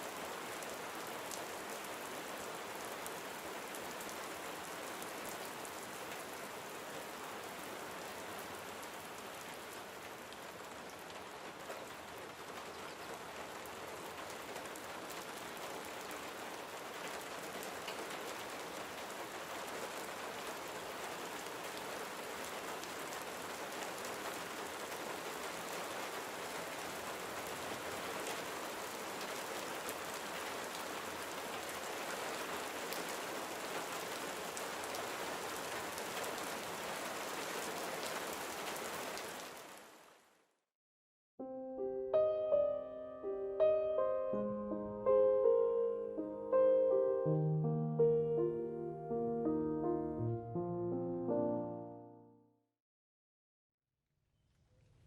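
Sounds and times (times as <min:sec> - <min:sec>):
gentle rain hiss: 0:00.0 - 0:40.5, 0:41.6 - 0:52.0
raindrop ticks: 0:17.6 - 0:18.2.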